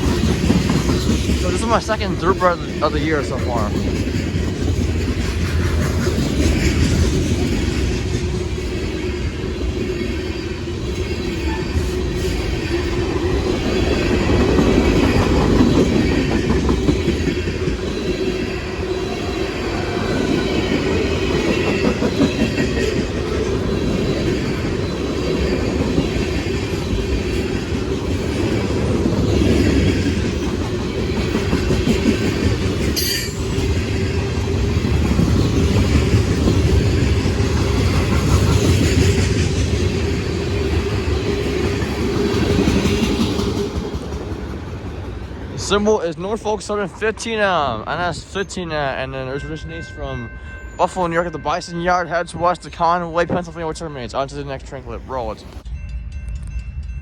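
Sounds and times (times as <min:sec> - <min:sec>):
wheels clicking over rail joints: 0:00.0 - 0:03.0
train wheels rumbling on rail: 0:00.0 - 0:57.0.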